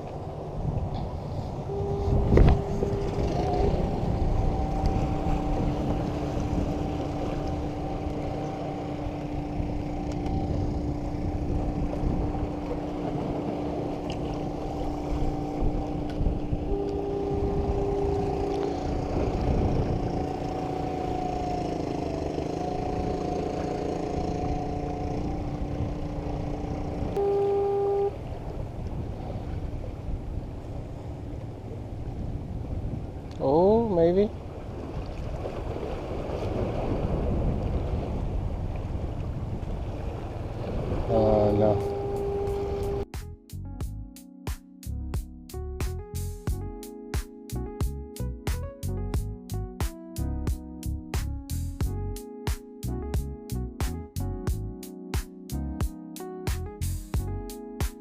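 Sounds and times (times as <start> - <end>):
wind rumble on microphone: 0.0 - 44.0
motorboat engine humming: 0.0 - 58.0.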